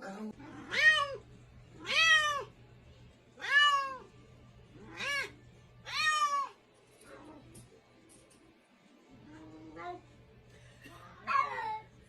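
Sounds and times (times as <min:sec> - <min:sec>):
cat meowing: 0:00.4 - 0:01.2, 0:01.8 - 0:02.5, 0:03.4 - 0:04.1, 0:04.9 - 0:06.6.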